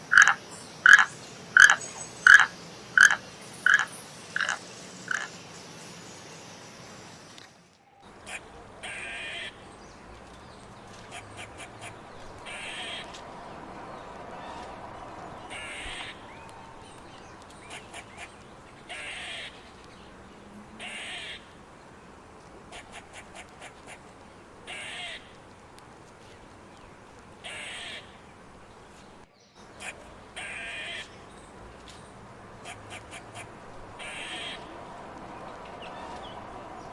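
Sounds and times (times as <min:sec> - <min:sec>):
crow cawing: 0:00.0 - 0:05.3, 0:08.2 - 0:09.6, 0:11.0 - 0:13.3, 0:14.3 - 0:17.0, 0:17.7 - 0:19.6, 0:20.8 - 0:21.5, 0:24.7 - 0:25.4, 0:27.4 - 0:28.2, 0:29.8 - 0:31.1, 0:32.6 - 0:34.7.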